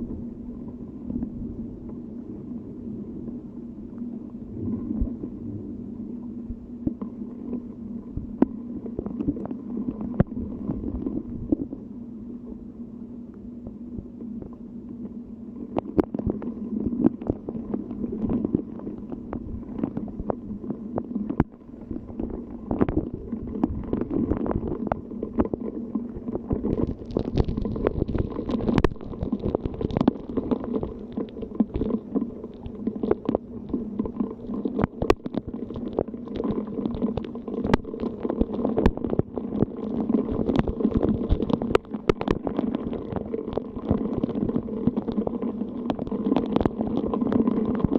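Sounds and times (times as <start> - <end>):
rain: 26.6 - 47.9.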